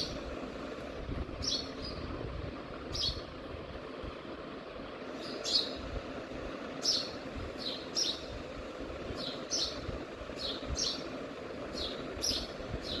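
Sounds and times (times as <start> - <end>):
steady low background noise: 0.0 - 13.0
small bird chirping: 1.4 - 2.1, 2.9 - 3.3, 5.1 - 5.8, 6.8 - 8.3, 9.1 - 11.1, 11.7 - 13.0.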